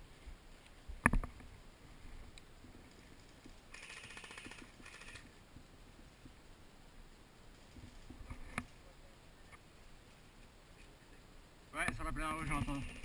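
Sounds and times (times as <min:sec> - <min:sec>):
distant airsoft gun bursts: 0:03.7 - 0:05.3, 0:12.6 - 0:13.0.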